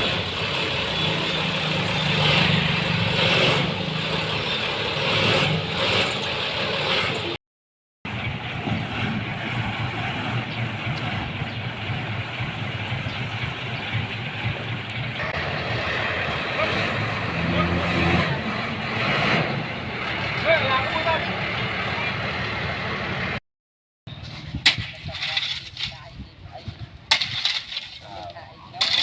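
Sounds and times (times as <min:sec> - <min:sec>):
heavy vehicle engine running: 0:00.0 - 0:07.4, 0:08.0 - 0:23.4.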